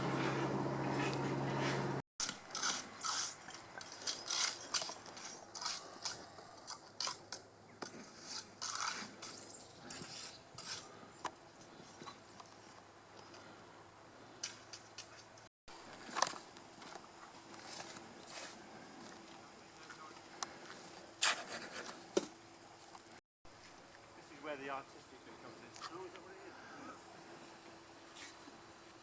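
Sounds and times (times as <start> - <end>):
steady machine hum: 0.0 - 2.0
hand tools scraping masonry: 0.1 - 12.2, 20.5 - 22.1.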